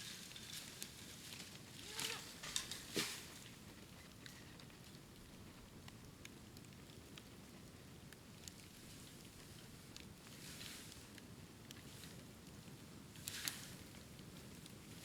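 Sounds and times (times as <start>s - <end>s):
bonfire crackling: 0.0s - 15.0s
loud pops of burning bamboo: 0.1s - 3.6s.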